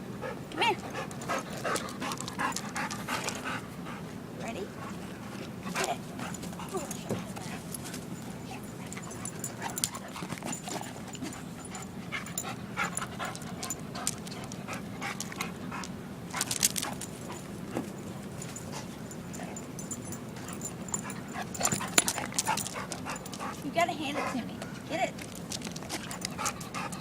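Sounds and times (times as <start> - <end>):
dog panting: 0.2 - 27.0.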